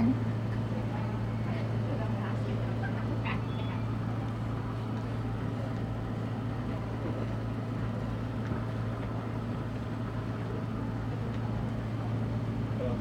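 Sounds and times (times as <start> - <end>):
boat engine humming: 0.0 - 1.2.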